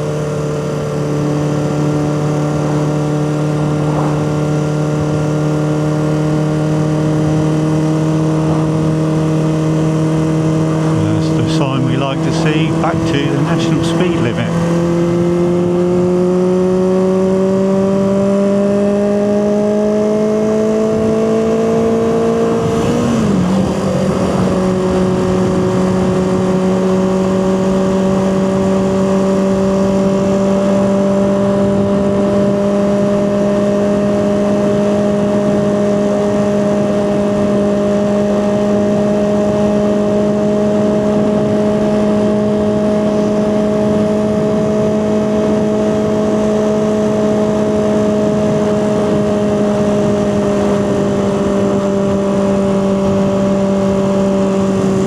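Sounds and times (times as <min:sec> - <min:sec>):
motorcycle engine accelerating: 0:00.0 - 0:55.0
wind noise: 0:02.5 - 0:05.9, 0:20.8 - 0:34.7, 0:40.4 - 0:55.0.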